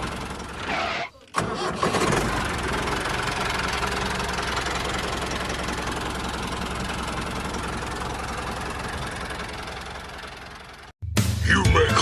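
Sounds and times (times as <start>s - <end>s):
engine idling with knocking: 0.0s - 0.6s, 1.4s - 11.0s.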